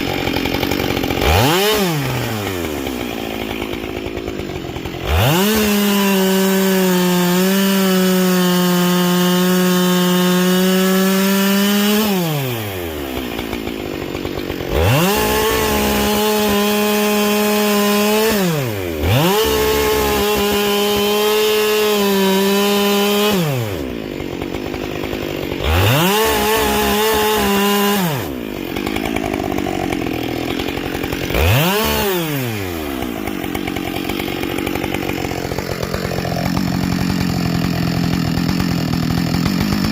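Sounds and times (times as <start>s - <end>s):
chainsaw revving and cutting wood: 0.0s - 39.9s.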